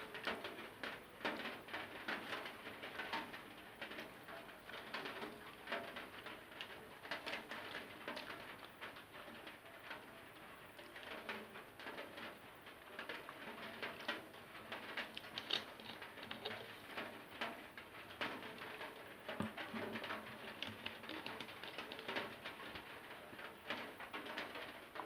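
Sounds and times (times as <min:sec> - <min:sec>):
wet chewing and mouth sounds: 0:15.0 - 0:17.0, 0:19.3 - 0:22.3.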